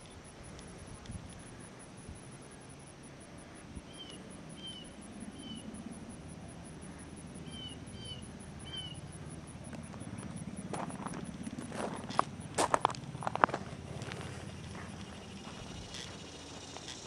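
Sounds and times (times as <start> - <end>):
low outdoor background hum: 0.0 - 17.0
bird chirping: 3.9 - 5.7, 7.4 - 9.1.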